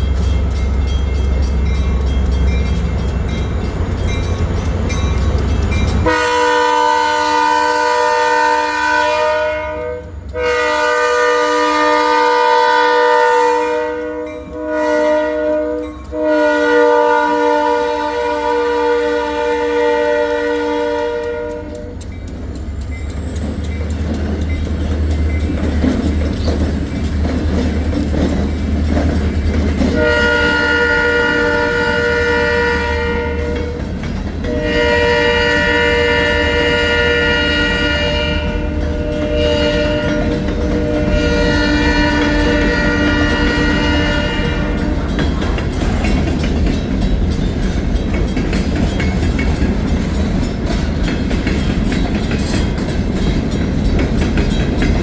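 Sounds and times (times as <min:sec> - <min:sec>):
diesel locomotive rumbling: 0:00.0 - 0:55.0
train rolling noise: 0:00.0 - 0:55.0
train horn blast: 0:06.0 - 0:22.0, 0:29.9 - 0:33.8, 0:34.4 - 0:45.2.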